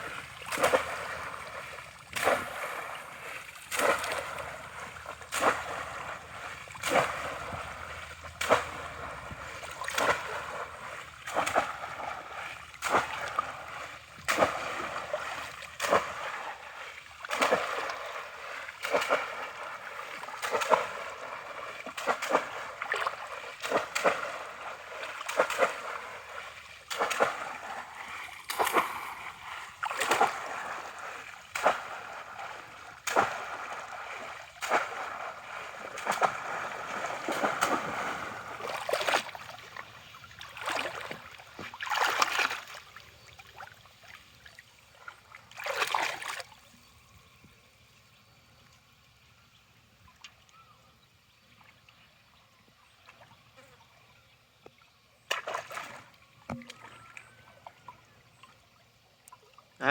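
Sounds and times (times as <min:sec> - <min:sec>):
water splashing: 0:00.0 - 0:46.8, 0:55.1 - 0:58.5.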